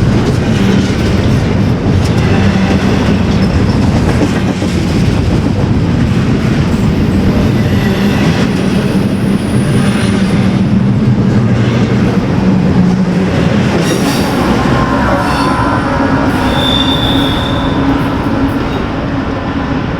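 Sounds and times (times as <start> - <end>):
train wheels rumbling on rail: 0.0 - 19.9
high-pitched wheel squeal: 13.8 - 19.0.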